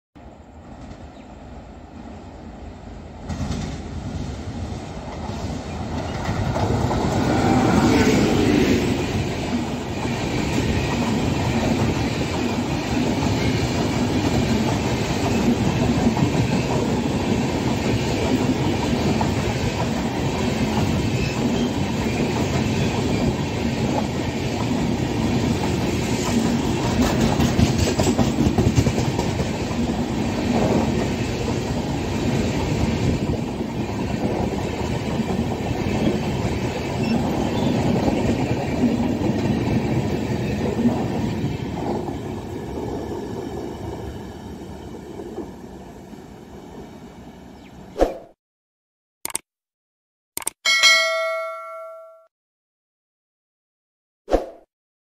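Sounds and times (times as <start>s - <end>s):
train passing rumble: 0.2s - 47.6s
wheels clacking over rail joints: 25.5s - 29.9s.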